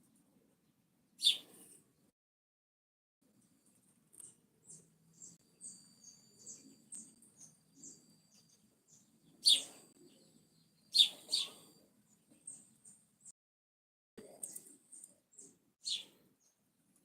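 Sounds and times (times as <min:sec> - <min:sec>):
birds chirping: 0:00.6 - 0:01.6, 0:04.2 - 0:13.3, 0:14.3 - 0:16.6
sharp bird calls: 0:01.2 - 0:01.5, 0:04.6 - 0:10.2, 0:10.8 - 0:11.8, 0:15.3 - 0:16.5.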